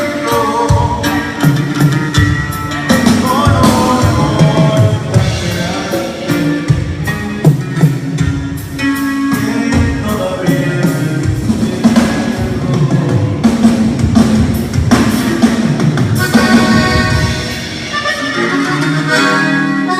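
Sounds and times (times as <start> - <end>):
live band playing: 0.0 - 19.9.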